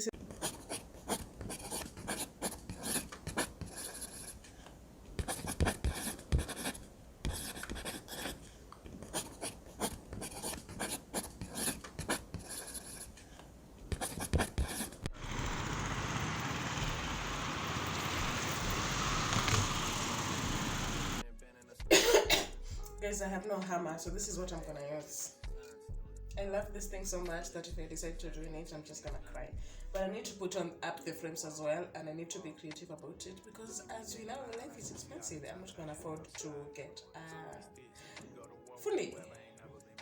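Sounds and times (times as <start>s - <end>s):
steady hiss: 15.2s - 21.2s.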